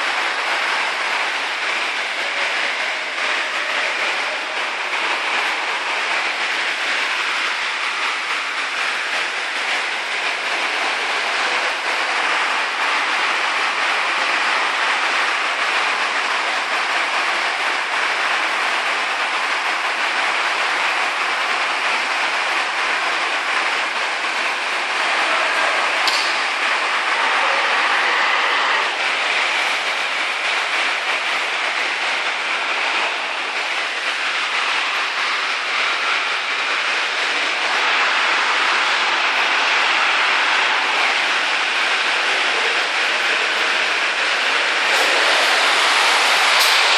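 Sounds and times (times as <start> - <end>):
heavy rain downpour: 0.0 - 46.9
sharp click: 26.0 - 26.4.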